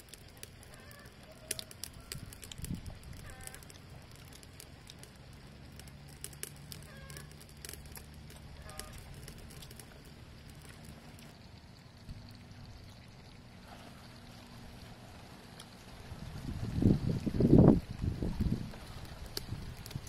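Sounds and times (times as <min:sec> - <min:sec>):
chewing and crunching: 0:00.0 - 0:11.4
low steady hum: 0:00.0 - 0:20.0.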